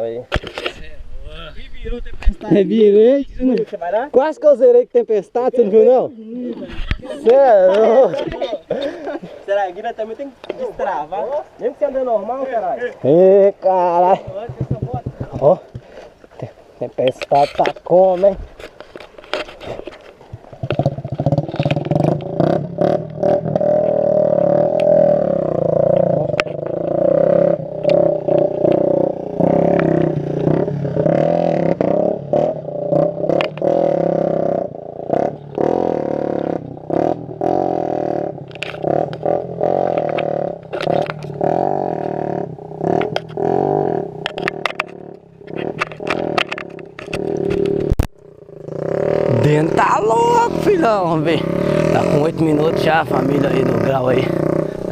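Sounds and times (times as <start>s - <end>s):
motorcycle engine at high revs: 12.6s - 15.8s, 20.3s - 54.9s
clicks and pops: 44.2s - 49.5s.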